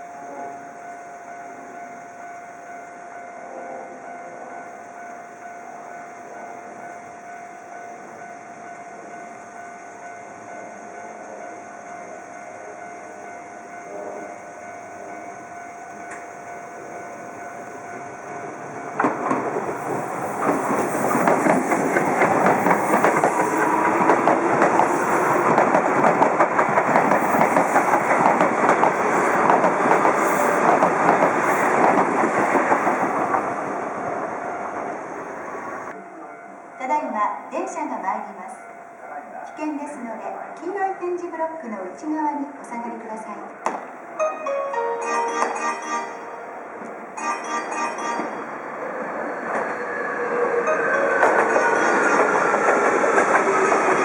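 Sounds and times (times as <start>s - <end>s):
level crossing warning bell: 0.0s - 41.3s, 43.2s - 49.0s
train wheels clattering: 18.9s - 33.8s, 49.2s - 54.0s.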